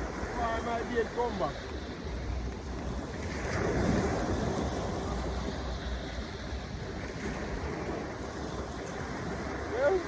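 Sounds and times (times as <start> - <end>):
waves: 0.0 - 10.0
wind: 0.0 - 10.0.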